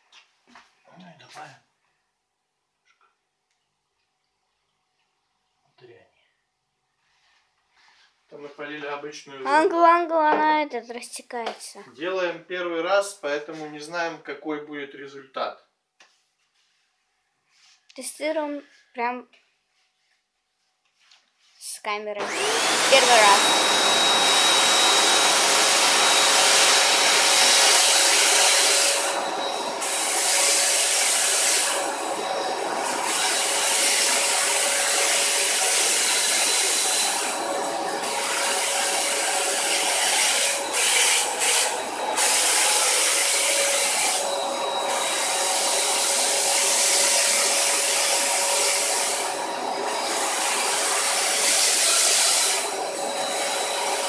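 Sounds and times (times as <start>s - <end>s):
vacuum cleaner motor whining: 22.2s - 54.0s.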